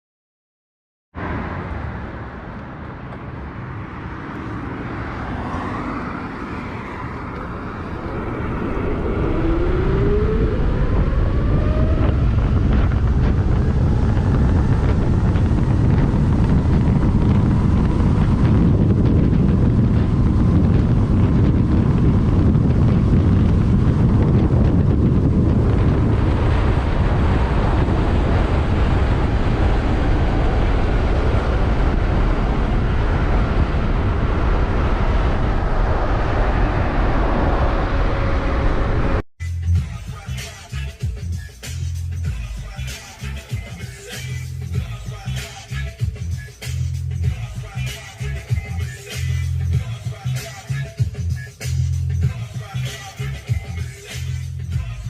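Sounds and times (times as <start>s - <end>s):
wind rushing over microphone: 1.2s - 39.2s
faint rising whine: 3.4s - 39.2s.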